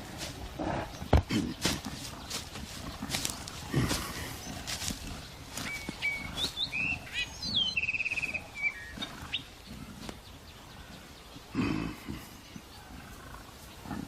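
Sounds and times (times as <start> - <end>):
soft rustles: 0.0 - 7.0
bird singing: 0.0 - 14.0.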